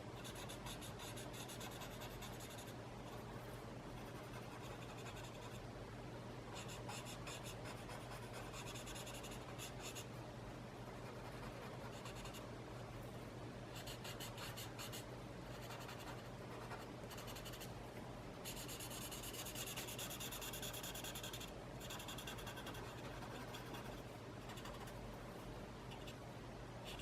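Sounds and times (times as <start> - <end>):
pen scratching on paper: 0.2 - 2.7, 4.0 - 5.6, 6.6 - 10.1, 11.0 - 12.4, 13.8 - 17.7, 18.4 - 24.9.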